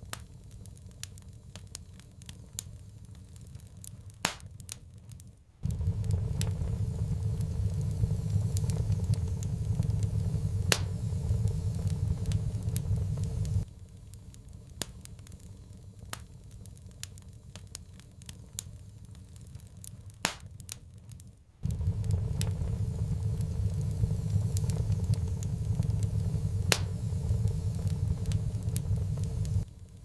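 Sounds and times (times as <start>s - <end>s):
fire crackling in fireplace: 0.0s - 30.0s
low steady rumble: 5.4s - 20.2s, 21.4s - 30.0s.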